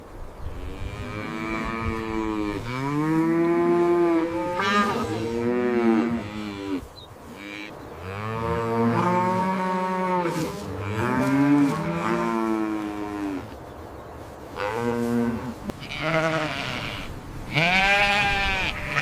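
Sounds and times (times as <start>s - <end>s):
cattle mooing: 0.8s - 13.5s.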